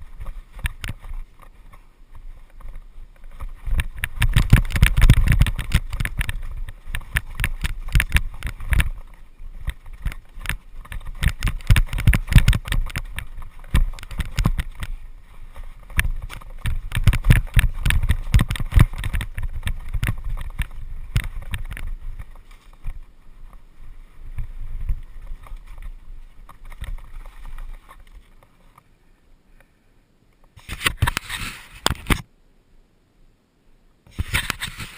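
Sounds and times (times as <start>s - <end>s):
wind on microphone: 0.0s - 28.3s
tyres rumbling on trail: 0.0s - 29.8s
bike clattering over bumps: 3.3s - 23.0s.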